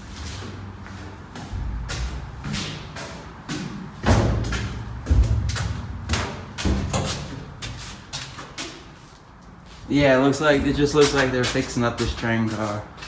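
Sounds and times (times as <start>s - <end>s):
footsteps on train floor: 0.0s - 13.0s
heavy thuds: 1.3s - 8.1s, 9.9s - 11.8s.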